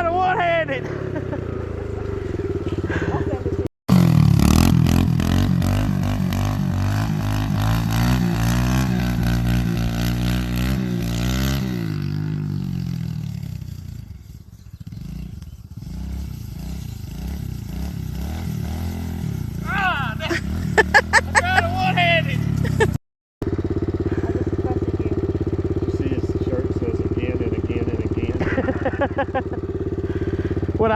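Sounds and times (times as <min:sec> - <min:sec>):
pit bike engine revving: 0:00.0 - 0:30.9.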